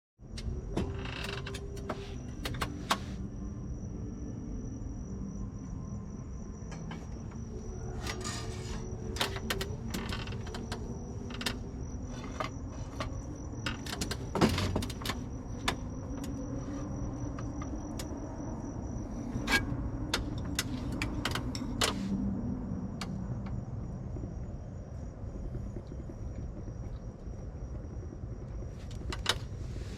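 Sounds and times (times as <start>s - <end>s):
low steady rumble: 1.4s - 29.9s.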